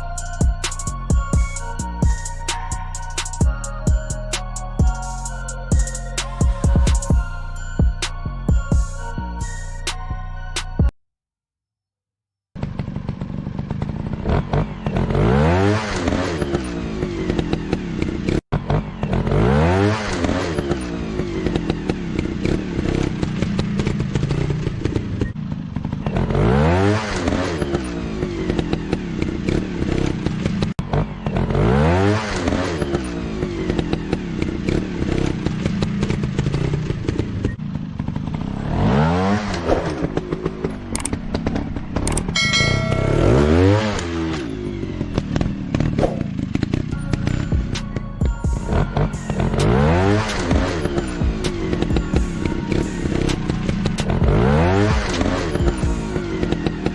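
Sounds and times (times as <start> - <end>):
dirt bike engines revving: 12.6 - 56.9.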